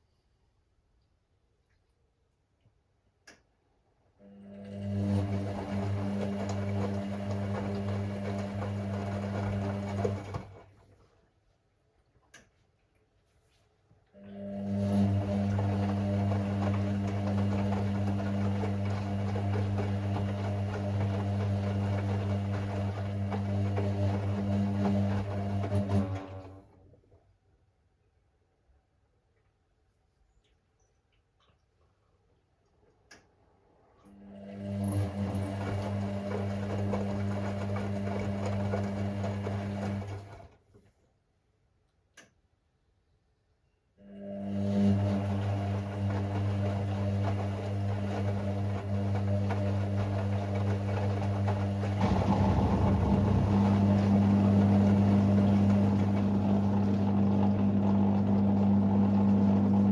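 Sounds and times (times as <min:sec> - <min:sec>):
washing machine humming: 0:04.4 - 0:11.2, 0:14.2 - 0:27.1, 0:33.8 - 0:40.7, 0:44.1 - 0:59.9.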